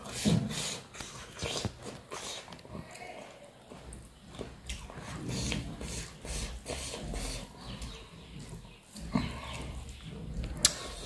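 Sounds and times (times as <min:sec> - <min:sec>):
wet chewing and lip smacking: 0:04.0 - 0:11.0.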